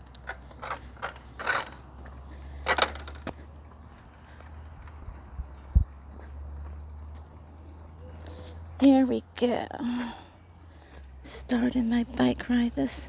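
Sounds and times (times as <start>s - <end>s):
handling clicks and rattles: 0.0s - 9.7s
steady low hum: 0.0s - 13.0s.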